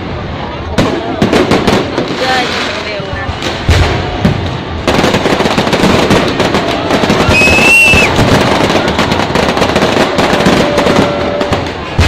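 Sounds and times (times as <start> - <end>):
fireworks crackling and banging: 0.0 - 12.0
firework whistle: 6.9 - 12.0.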